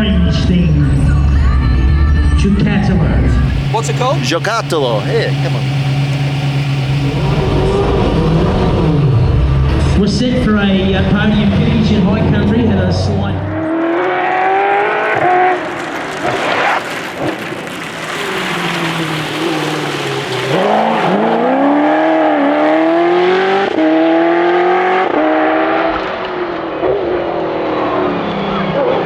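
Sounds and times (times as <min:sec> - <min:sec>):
racing engine revving: 0:03.3 - 0:29.0.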